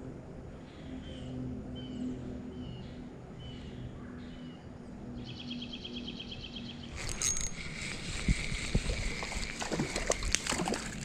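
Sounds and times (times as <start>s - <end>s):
songbirds chirping: 0.6s - 7.4s.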